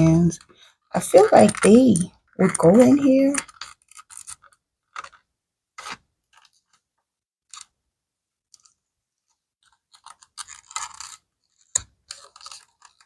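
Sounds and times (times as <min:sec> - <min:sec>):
pens scraping into leather slot: 0:09.6 - 0:13.0.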